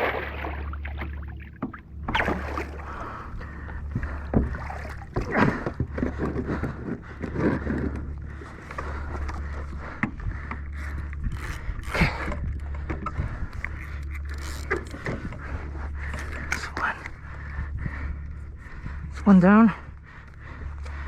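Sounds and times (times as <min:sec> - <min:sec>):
water splashing: 0:00.0 - 0:05.7
wind rumble on microphone: 0:00.0 - 0:21.0
gear knocking against kayak hull: 0:03.3 - 0:16.9.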